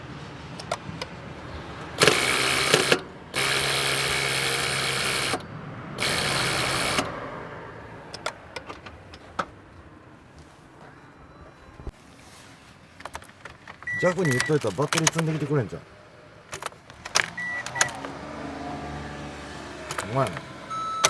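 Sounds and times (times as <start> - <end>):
starter clicks: 0.5 - 7.3, 8.0 - 9.6, 13.0 - 15.8, 16.5 - 18.3, 19.8 - 21.0
starter motor cranking engine: 0.6 - 7.4, 16.5 - 21.0.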